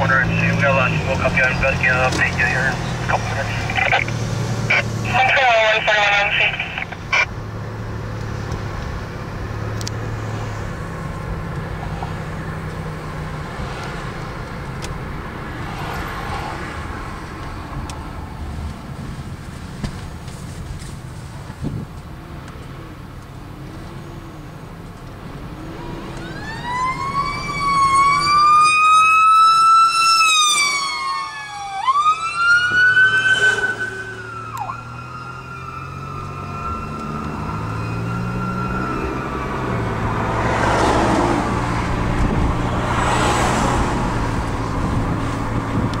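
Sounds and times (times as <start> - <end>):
fire truck engine rumble: 0.0 - 46.0
electronic siren wailing: 26.1 - 40.1.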